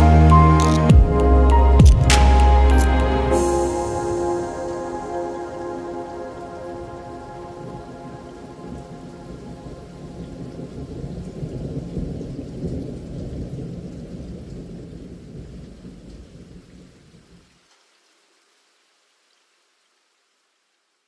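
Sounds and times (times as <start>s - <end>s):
rolling thunder: 0.0s - 16.6s
steady rain: 0.0s - 21.0s.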